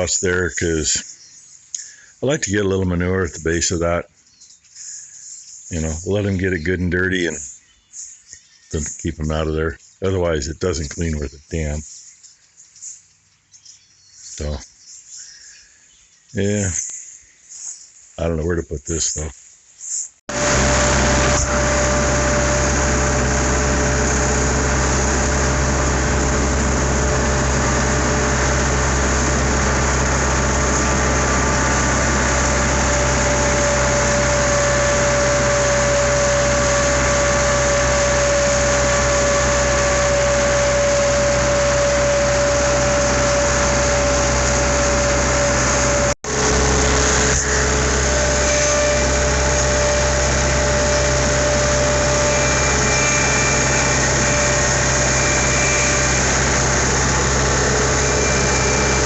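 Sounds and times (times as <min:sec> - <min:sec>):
skid steer engine running: 0:00.0 - 0:01.1, 0:01.8 - 0:04.0, 0:20.3 - 0:59.0
steady whine: 0:00.0 - 0:01.1, 0:20.3 - 0:59.0.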